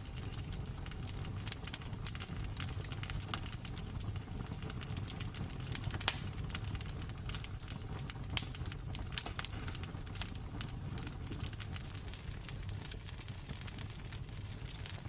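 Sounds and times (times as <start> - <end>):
fire popping: 0.0 - 15.0
wood fire crackling: 0.0 - 15.0.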